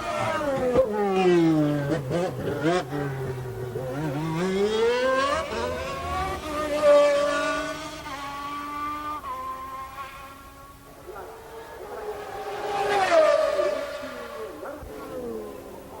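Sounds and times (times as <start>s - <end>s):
racing car engine revving: 0.0s - 10.4s.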